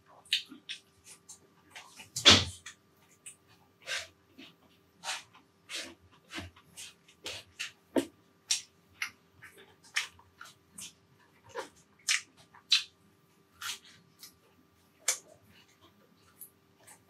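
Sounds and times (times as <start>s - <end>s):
chewing with lip smacks: 0.1s - 13.0s.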